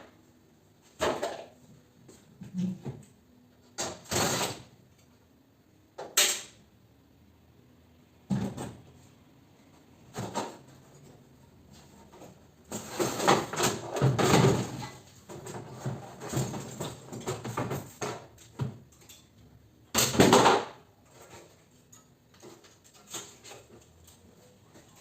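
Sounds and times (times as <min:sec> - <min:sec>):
metal knocks and rattling clatter: 0:12.0 - 0:19.4.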